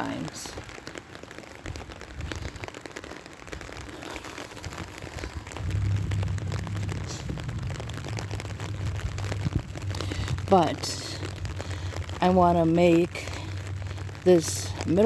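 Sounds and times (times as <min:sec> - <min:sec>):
rain falling: 0:00.0 - 0:15.0
steady low rumble: 0:04.6 - 0:15.0.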